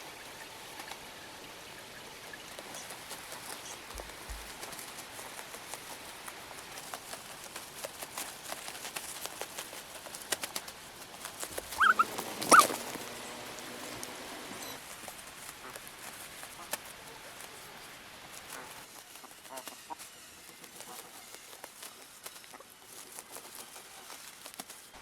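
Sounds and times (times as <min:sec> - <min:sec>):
steady hiss: 0:00.0 - 0:25.0
small animal whining cries: 0:11.7 - 0:12.8.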